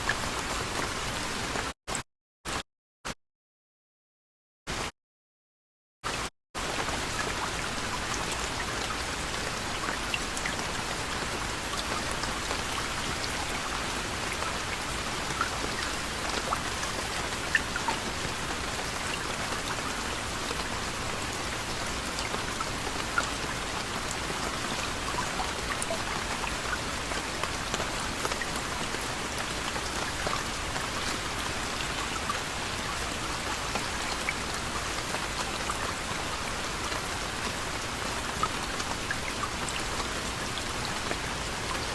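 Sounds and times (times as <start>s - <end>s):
water drips: 6.8s - 36.2s.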